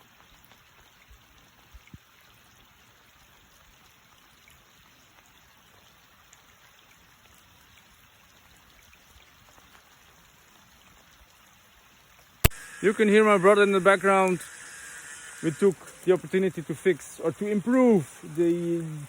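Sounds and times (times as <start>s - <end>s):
light rain hissing: 9.2s - 19.0s.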